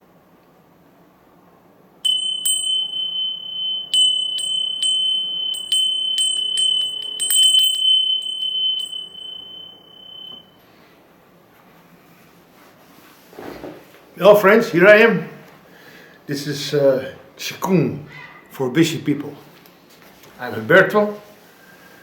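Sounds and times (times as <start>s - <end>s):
small high-pitched bell ringing: 2.0s - 10.5s.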